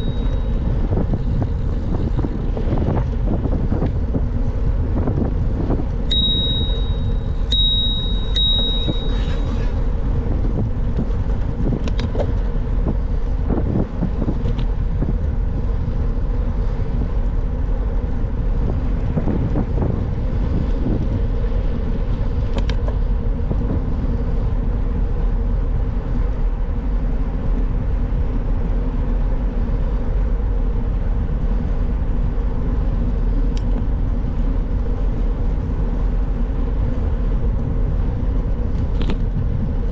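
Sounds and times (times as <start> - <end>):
bicycle bell ringing: 0.0 - 0.9, 6.1 - 9.6
wind and tyre rumble: 0.0 - 39.9.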